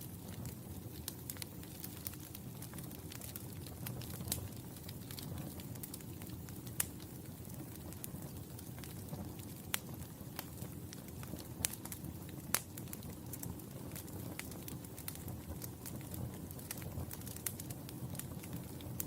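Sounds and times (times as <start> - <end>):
wood fire crackling and popping: 0.0 - 19.0.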